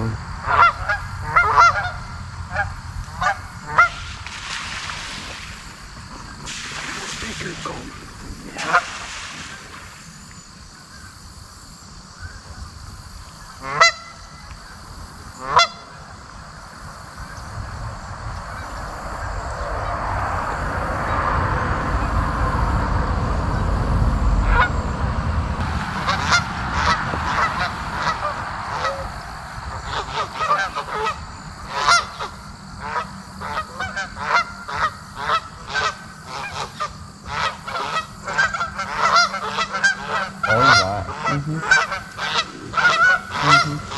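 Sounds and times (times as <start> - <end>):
geese honking: 0.0 - 10.4, 13.4 - 14.5, 15.2 - 16.3, 24.4 - 24.8, 25.6 - 43.9
rush of noise: 0.0 - 10.9, 16.4 - 33.2, 39.7 - 43.9.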